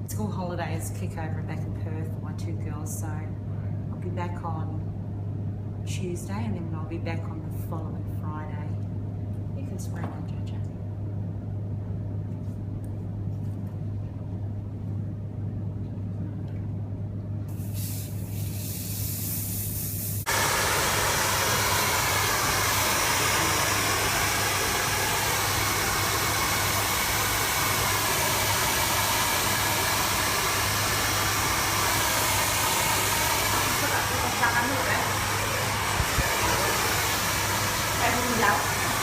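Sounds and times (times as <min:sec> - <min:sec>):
low steady hum: 0:00.0 - 0:39.0
hair dryer blowing: 0:20.2 - 0:39.0.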